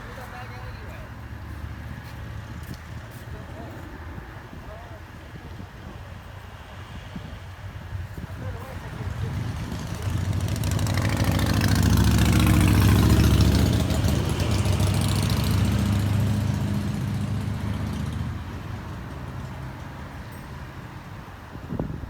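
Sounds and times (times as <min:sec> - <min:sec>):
vehicle engine running: 0:08.5 - 0:20.2.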